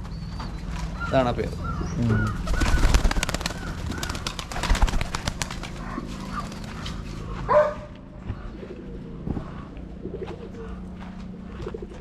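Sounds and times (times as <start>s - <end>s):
dog barking: 7.4s - 7.9s.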